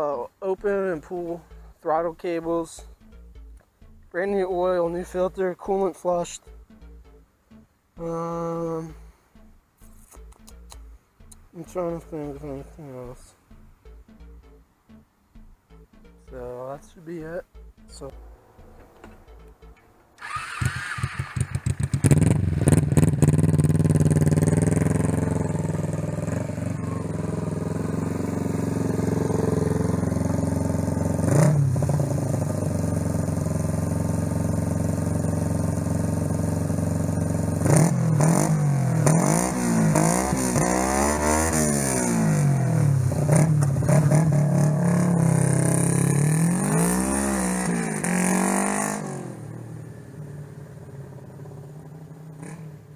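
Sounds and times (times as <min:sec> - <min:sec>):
motorcycle engine starting and revving: 0:17.2 - 0:52.9.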